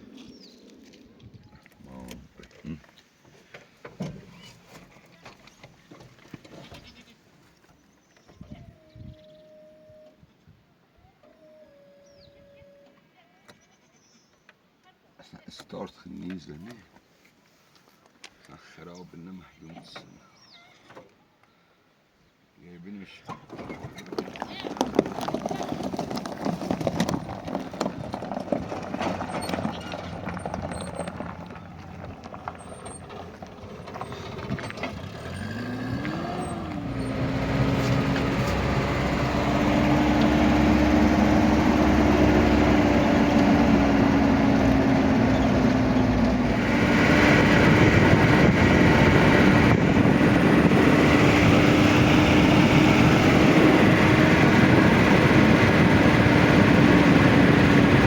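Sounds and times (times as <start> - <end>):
engine starting and running: 23.3 - 58.0.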